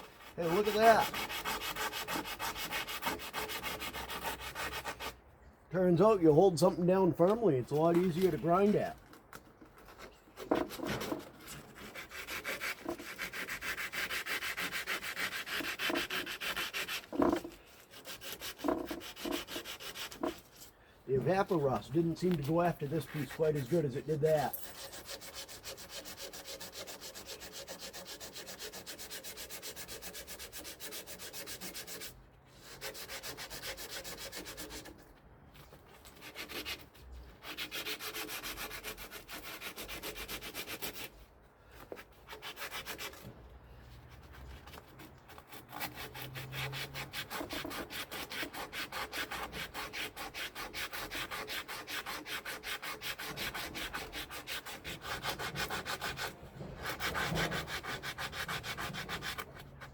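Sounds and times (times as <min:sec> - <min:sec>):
scrubbing rust off metal: 0:00.0 - 0:05.2, 0:06.2 - 0:59.9.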